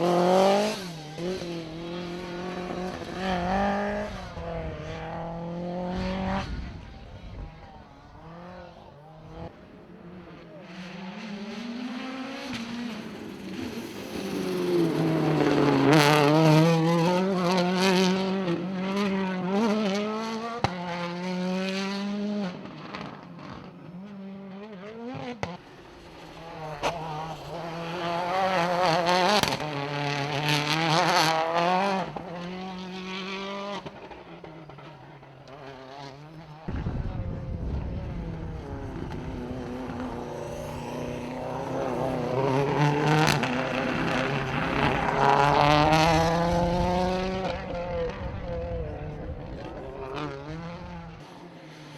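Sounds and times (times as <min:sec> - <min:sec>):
rally car engines revving: 0:00.0 - 0:51.9
low rumble: 0:36.7 - 0:41.4.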